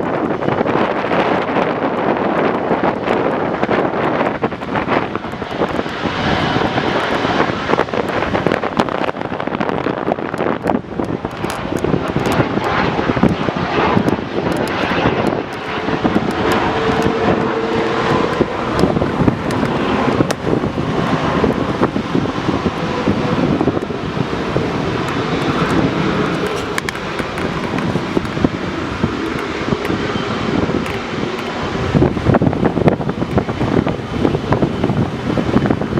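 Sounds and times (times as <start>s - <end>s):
jet engines running: 0.0s - 35.9s
wind buffeting microphone: 0.0s - 35.9s.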